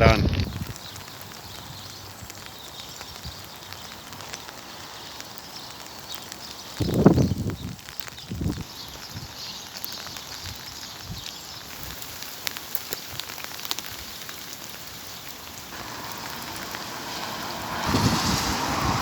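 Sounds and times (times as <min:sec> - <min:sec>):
steady rain falling: 0:00.0 - 0:19.0
sharp drip ticks: 0:11.7 - 0:17.9.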